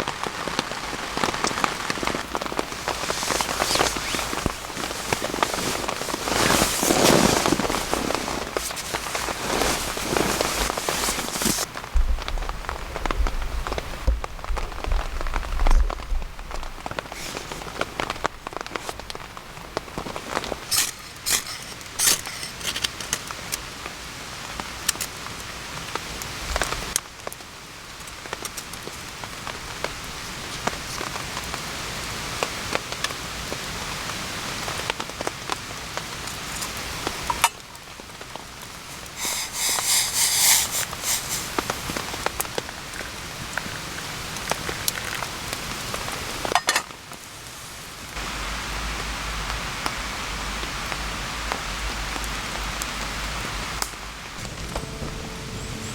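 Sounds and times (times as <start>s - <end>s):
steady rain falling: 0.0s - 55.9s
quick rustling clicks: 2.2s - 11.7s, 20.4s - 23.3s, 38.9s - 42.4s.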